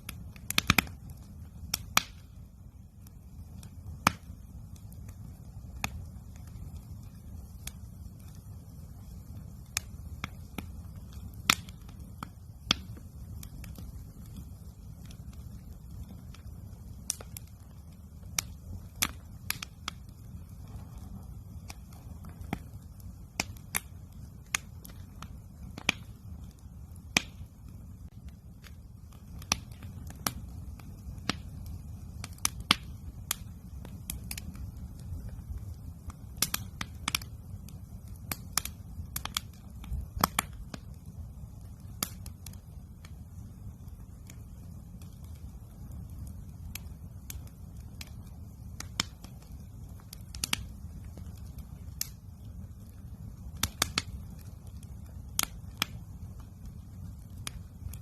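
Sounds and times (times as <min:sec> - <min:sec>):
campfire crackling and popping: 0:00.0 - 0:58.0
low rumble: 0:20.2 - 0:23.2.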